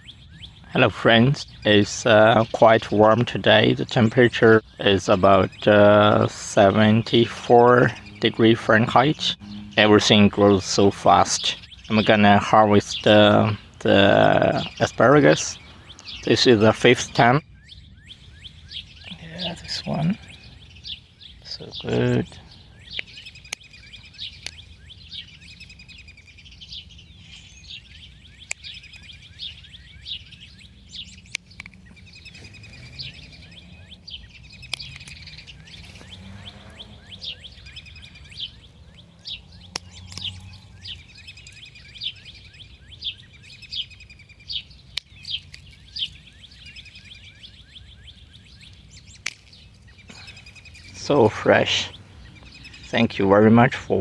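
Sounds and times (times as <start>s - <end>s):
songbirds chirping: 0.0s - 54.0s
sharp clicks: 21.7s - 24.7s, 27.8s - 29.5s, 30.9s - 33.3s, 34.1s - 41.7s, 44.9s - 46.2s, 48.6s - 51.5s.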